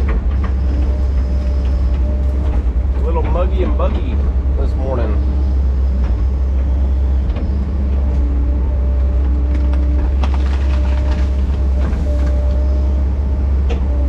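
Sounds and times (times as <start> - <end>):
machine knocks and clanks: 0.0 - 8.4
diesel engine rumbling: 0.0 - 14.0.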